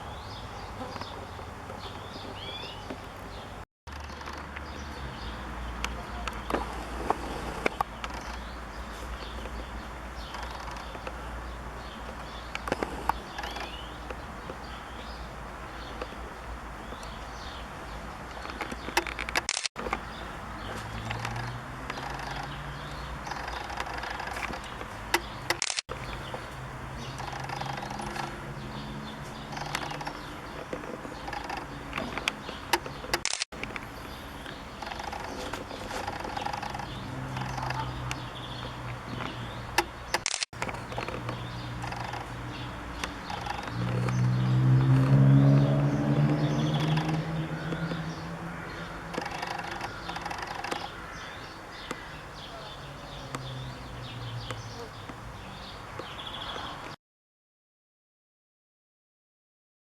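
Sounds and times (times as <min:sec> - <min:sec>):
songbirds chirping and singing: 0:00.0 - 0:57.0
sharp clicks: 0:18.3 - 0:20.2, 0:20.9 - 0:22.5, 0:23.3 - 0:26.4, 0:29.5 - 0:35.4, 0:36.1 - 0:42.4.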